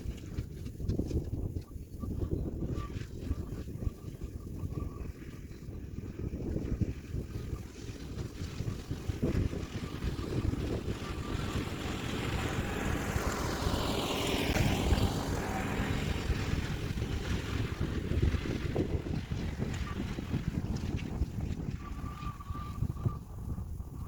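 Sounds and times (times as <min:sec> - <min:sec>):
wind buffeting microphone: 0:00.0 - 0:24.0
tractor diesel engine running: 0:06.0 - 0:23.9.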